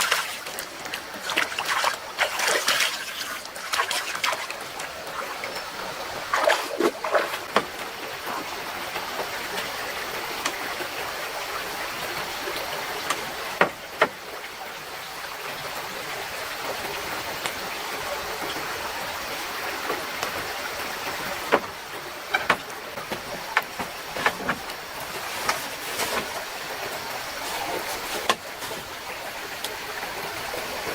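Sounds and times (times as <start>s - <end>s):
mountain stream running: 0.0s - 30.9s
sharp clicks and knocks: 21.5s - 24.8s.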